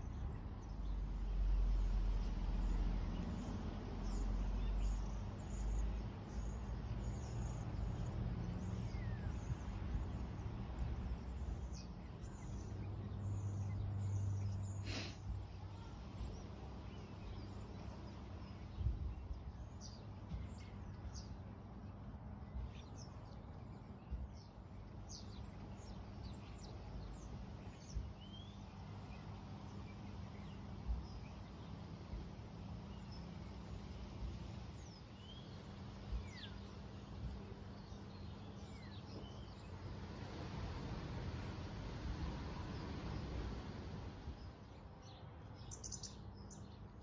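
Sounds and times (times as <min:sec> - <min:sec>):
low outdoor background hum: 0:00.0 - 0:47.0
small birds chirping: 0:00.0 - 0:47.0.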